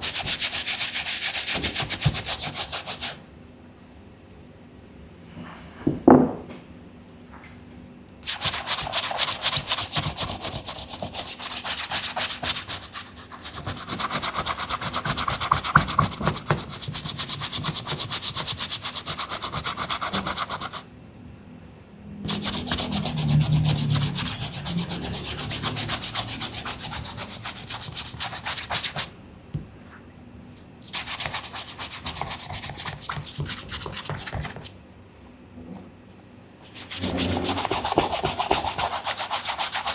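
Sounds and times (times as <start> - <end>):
brush scrubbing a sneaker: 0.0 - 3.2, 8.3 - 20.8, 22.3 - 29.1, 30.9 - 34.7, 36.8 - 39.9.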